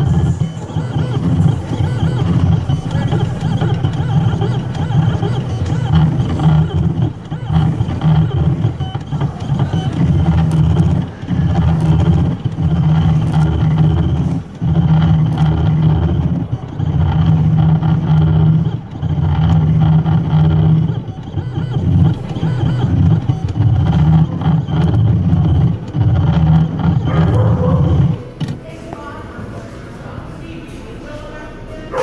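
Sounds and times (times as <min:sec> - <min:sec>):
engraving machine buzzing: 0:00.0 - 0:28.6.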